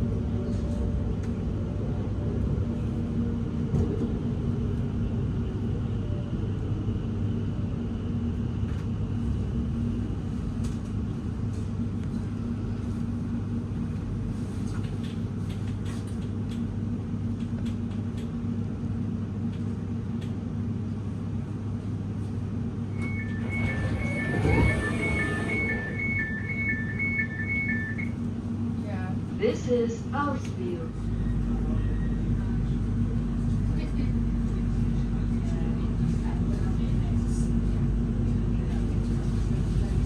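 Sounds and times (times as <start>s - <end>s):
train low rumble: 0.0s - 40.0s
two-note door beep: 23.0s - 28.1s.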